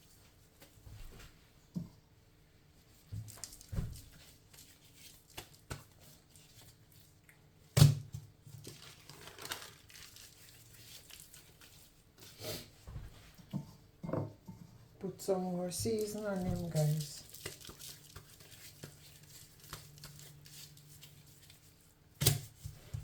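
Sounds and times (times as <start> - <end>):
crinkling and rustling: 2.9 - 7.2, 8.4 - 13.6, 15.6 - 23.0.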